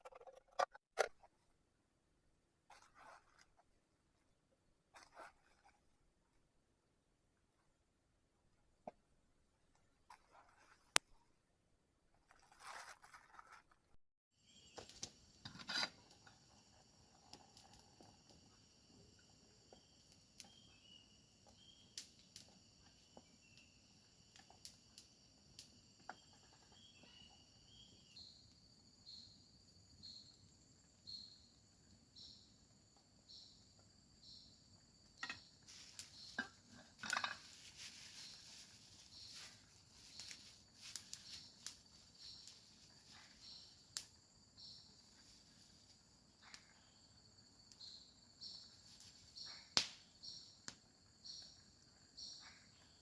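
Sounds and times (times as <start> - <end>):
crickets chirping: 14.4 - 53.0
sharp clicks and crackles: 35.2 - 44.2.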